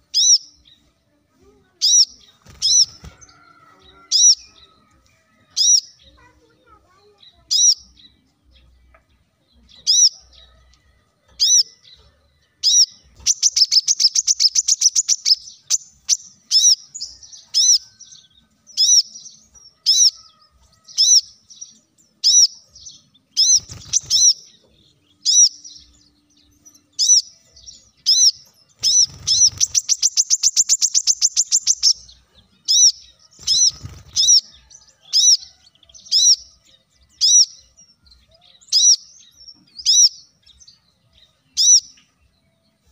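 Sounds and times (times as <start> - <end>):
bird fast trill: 1.8 - 3.4, 12.6 - 17.9, 22.2 - 24.5, 27.0 - 34.6.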